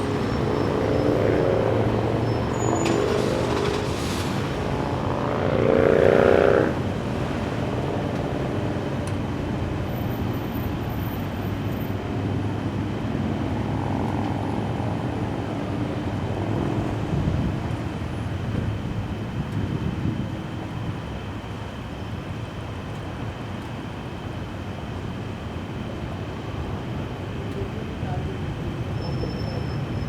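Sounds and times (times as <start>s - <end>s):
vehicle engines humming: 0.0s - 30.0s.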